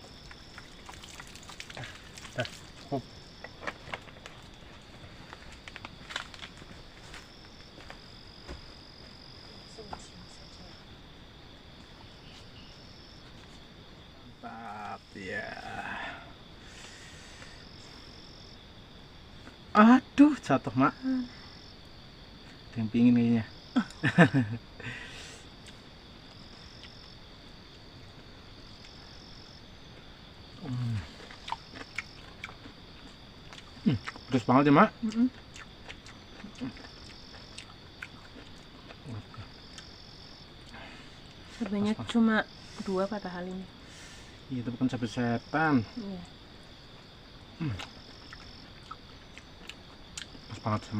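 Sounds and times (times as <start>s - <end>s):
higher insect trill: 0.0s - 50.9s
insects trilling: 0.0s - 50.9s.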